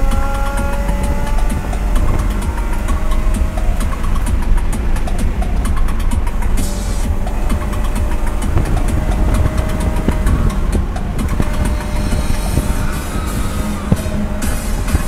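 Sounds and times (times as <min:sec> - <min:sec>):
race car engine at high revs: 0:00.0 - 0:15.0
road noise: 0:00.0 - 0:15.0
small rattles: 0:00.0 - 0:15.0.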